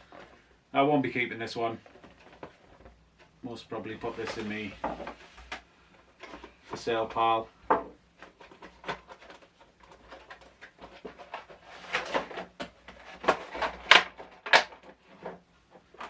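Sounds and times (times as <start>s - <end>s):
cardboard and paper crinkling: 0.0s - 0.5s, 1.1s - 7.5s, 8.1s - 16.0s.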